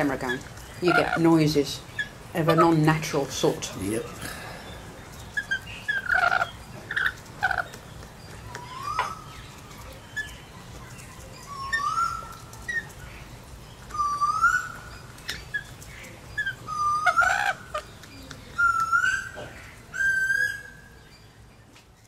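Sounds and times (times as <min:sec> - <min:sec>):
rising whistled bird notes: 0:08.6 - 0:09.5, 0:11.4 - 0:12.8, 0:13.9 - 0:15.0, 0:18.6 - 0:21.2.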